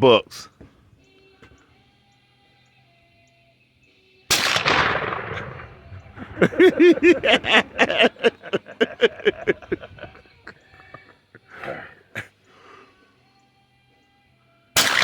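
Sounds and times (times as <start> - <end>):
shotgun blast: 4.3 - 6.4, 14.8 - 15.0.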